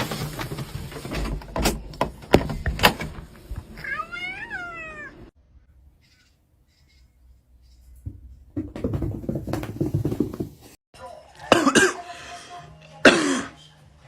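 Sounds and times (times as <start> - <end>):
cat meowing: 3.8 - 5.3
sharp knocks and thumps: 8.0 - 10.8.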